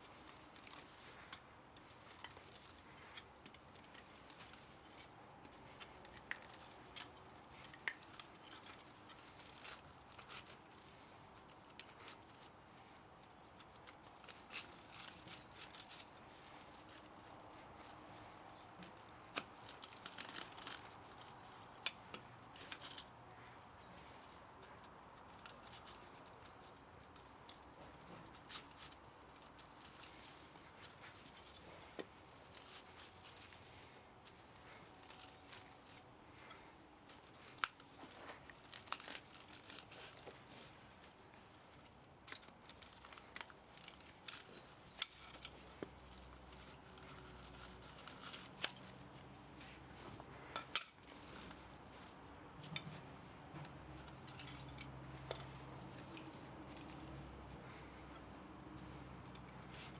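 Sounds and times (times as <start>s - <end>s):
hand tools snipping and scraping: 24.0s - 57.6s.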